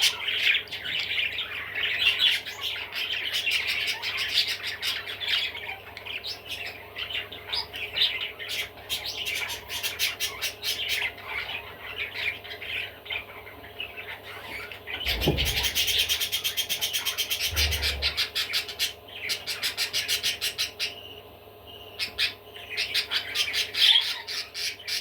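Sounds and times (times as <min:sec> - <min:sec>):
budgerigar chattering and warbling: 0:15.0 - 0:21.0.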